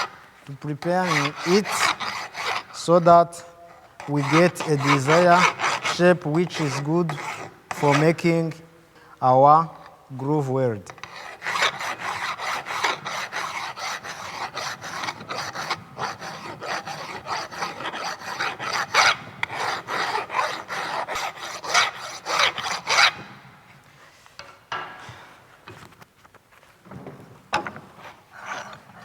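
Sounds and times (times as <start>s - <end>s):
hand file rasping on metal: 0.0s - 8.5s, 10.9s - 23.4s, 28.0s - 29.0s.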